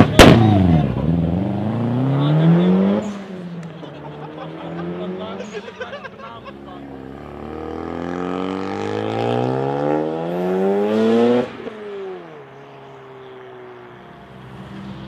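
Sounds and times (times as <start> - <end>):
rotary engine revving: 0.6 - 5.7, 6.9 - 12.6.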